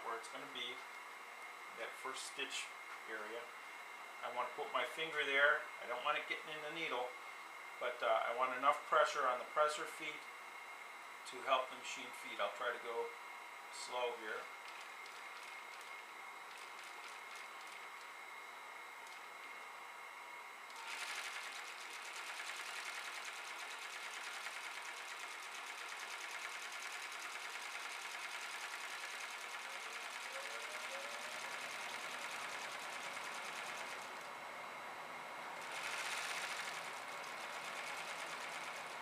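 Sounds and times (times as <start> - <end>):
sewing machine running: 14.6 - 18.1, 20.7 - 34.4, 35.6 - 39.0.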